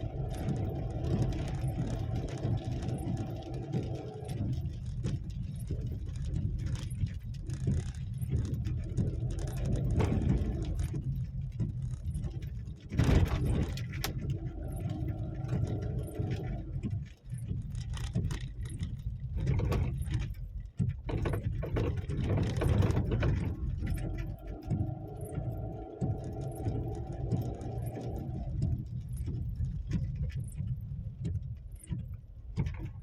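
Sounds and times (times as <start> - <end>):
vehicle engine running: 0.0 - 6.4, 22.6 - 29.4
low rumble: 0.0 - 33.0.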